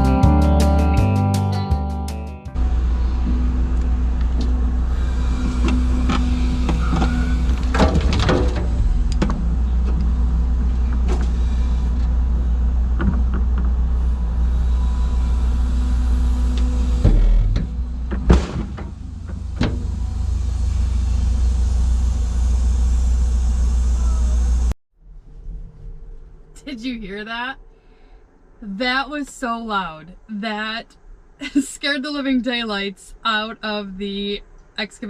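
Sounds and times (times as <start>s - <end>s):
diesel engine idling: 2.6s - 24.8s
knocks and clatters: 5.4s - 11.4s, 12.9s - 13.8s, 17.0s - 20.0s.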